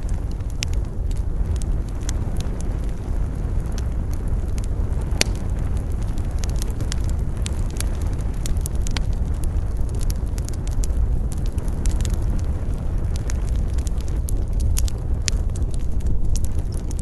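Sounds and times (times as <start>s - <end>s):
campfire crackling and popping: 0.0s - 17.0s
low rumble of wind: 0.0s - 17.0s.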